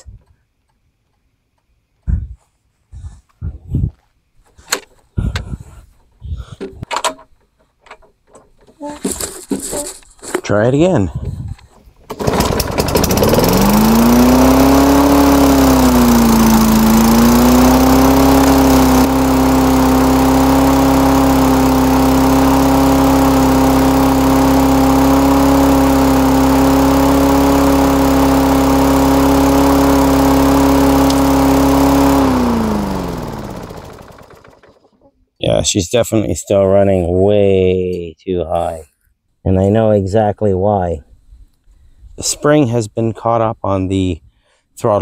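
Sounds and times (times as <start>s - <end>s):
lawn mower engine revving: 12.1s - 35.0s.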